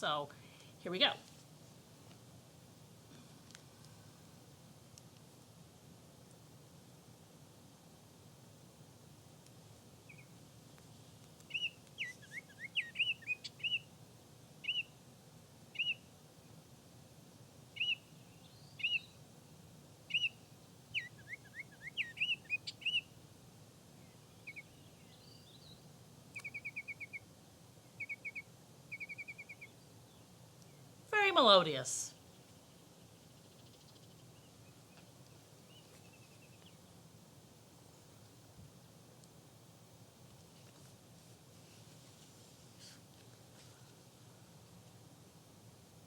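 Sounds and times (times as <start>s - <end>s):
oriole singing whistled notes: 11.5s - 13.9s, 14.6s - 14.9s, 15.8s - 16.0s, 17.8s - 19.2s, 20.1s - 23.1s, 28.0s - 29.7s.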